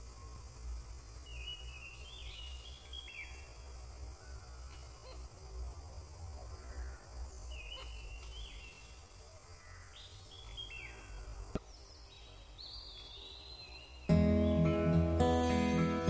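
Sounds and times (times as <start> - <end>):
birds chirping: 6.6 - 16.0.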